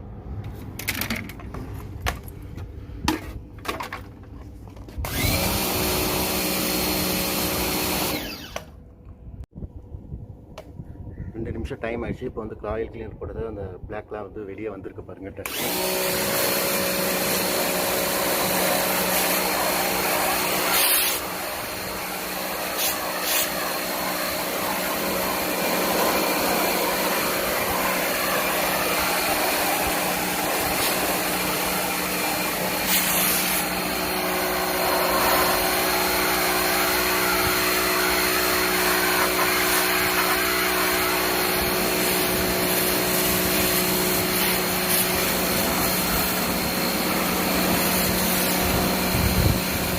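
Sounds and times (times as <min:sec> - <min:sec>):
pressure washer motor humming: 0:05.0 - 0:08.8, 0:15.4 - 0:49.9
water spraying: 0:15.8 - 0:37.5, 0:38.2 - 0:49.9.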